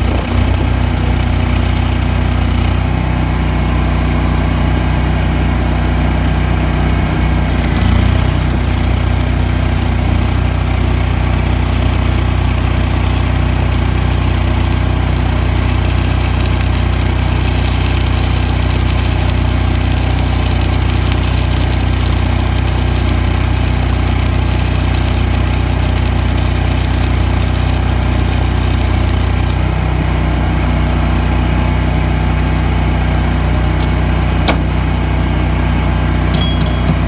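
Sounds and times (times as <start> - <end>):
crackling hiss of welding arc: 0.0 - 2.9, 7.5 - 29.9
welding machine engine running: 0.0 - 37.0.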